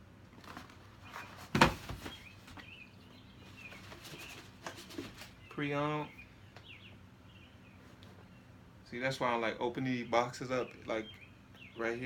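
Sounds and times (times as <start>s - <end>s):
sneaker box and shoes rustling: 0.3s - 2.8s, 3.4s - 5.4s.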